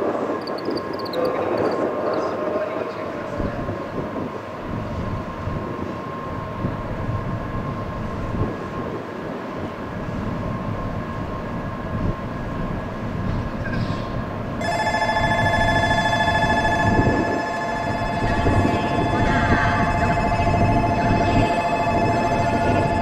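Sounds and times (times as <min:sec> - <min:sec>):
train humming high tone: 0:00.0 - 0:23.0
wind buffeting microphone: 0:00.0 - 0:23.0.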